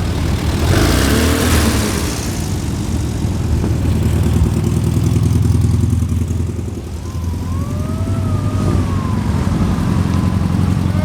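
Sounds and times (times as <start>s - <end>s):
car engine running: 0.0s - 11.0s
faint gliding tone: 6.8s - 11.0s.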